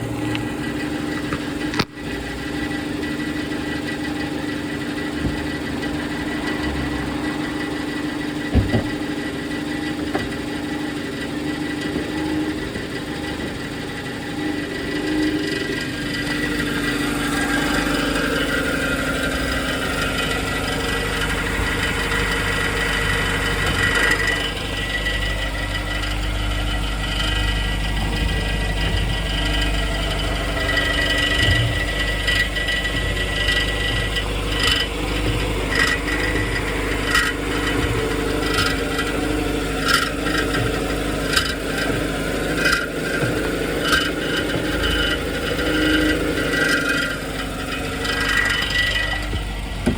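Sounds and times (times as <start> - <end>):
car engine running: 0.0 - 49.9
metallic rattle: 14.9 - 49.9.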